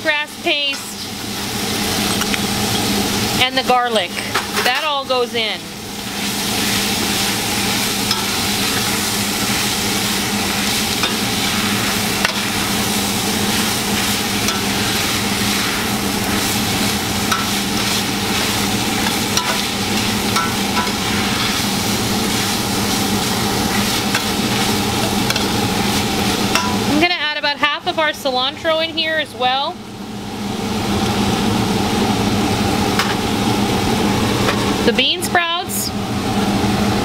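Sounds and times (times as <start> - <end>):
food sizzling in hot oil: 0.0 - 27.4.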